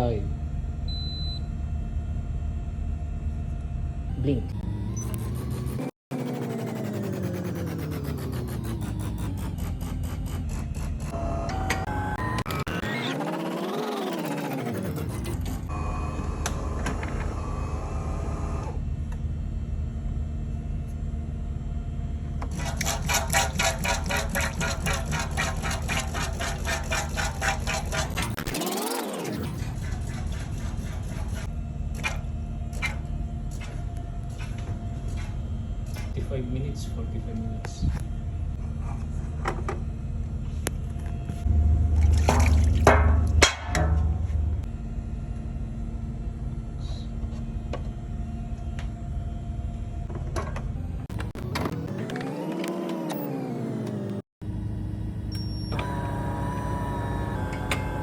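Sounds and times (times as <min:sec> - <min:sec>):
fast even pump pulsing: 0:05.1 - 0:18.7, 0:22.4 - 0:36.2
coffee machine pump humming: 0:15.4 - 0:18.8, 0:22.4 - 0:28.5, 0:55.3 - 0:58.0
espresso machine humming: 0:15.6 - 0:18.8, 0:54.5 - 0:58.0
water spurting and splashing: 0:41.9 - 0:43.0.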